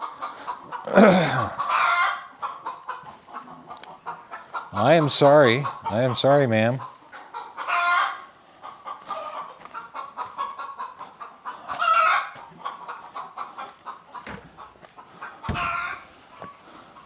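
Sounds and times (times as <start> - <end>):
hen drawn-out calls: 0.0 - 6.1, 6.8 - 16.1
hens clucking: 0.0 - 17.0
dull knocks: 15.5 - 15.8.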